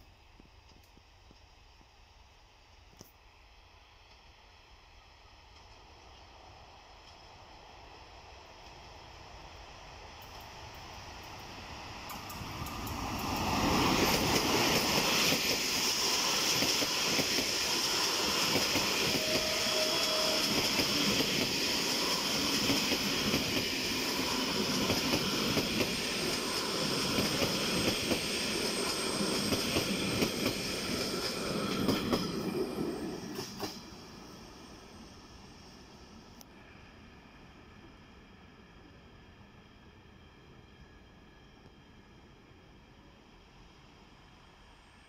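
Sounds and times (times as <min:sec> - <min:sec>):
train wheels rumbling on rail: 0:00.2 - 0:36.4.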